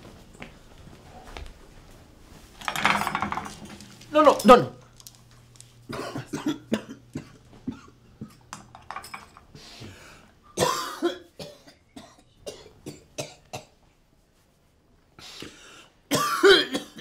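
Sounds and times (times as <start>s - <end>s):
man coughing: 5.9s - 8.4s, 10.6s - 13.7s, 16.1s - 17.0s.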